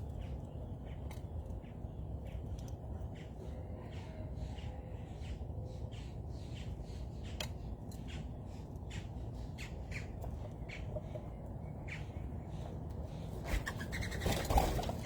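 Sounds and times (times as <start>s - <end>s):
birds giving harsh calls: 9.6s - 15.0s.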